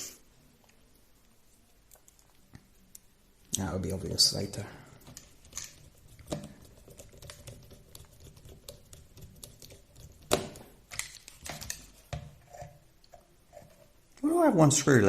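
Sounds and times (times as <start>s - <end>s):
small parts clicking and tapping: 5.0s - 12.3s.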